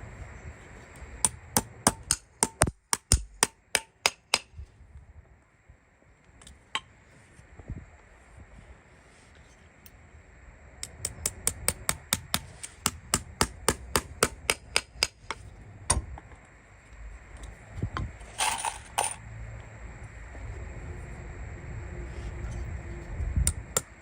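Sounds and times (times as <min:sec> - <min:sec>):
hammer tapping: 0:01.2 - 0:04.5, 0:10.9 - 0:16.0.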